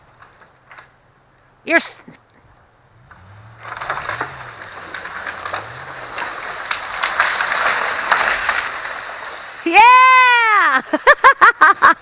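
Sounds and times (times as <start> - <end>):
truck engine hum: 0.0 - 11.0
leaves rustling: 2.4 - 11.1
branches cracking and snapping: 3.0 - 9.8.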